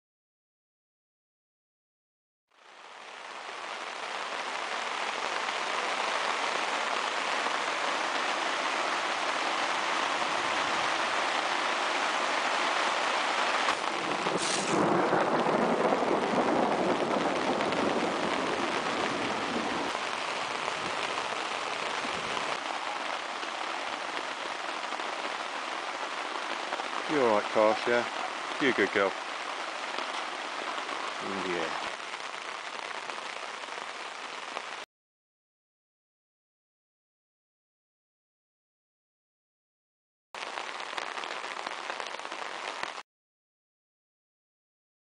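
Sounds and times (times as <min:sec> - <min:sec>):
steady rain falling: 0:02.5 - 0:34.9, 0:40.4 - 0:43.0.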